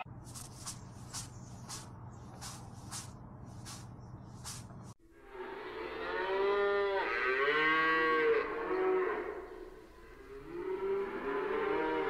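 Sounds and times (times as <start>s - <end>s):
cow mooing: 5.2s - 12.0s.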